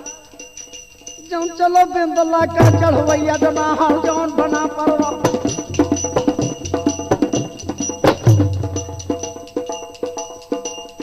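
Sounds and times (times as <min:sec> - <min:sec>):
rapid hand drum strokes: 0:02.4 - 0:11.0.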